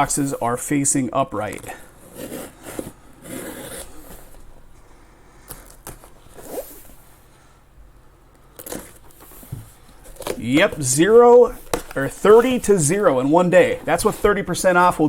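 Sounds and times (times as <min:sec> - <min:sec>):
packing tape tearing: 0:08.5 - 0:09.4.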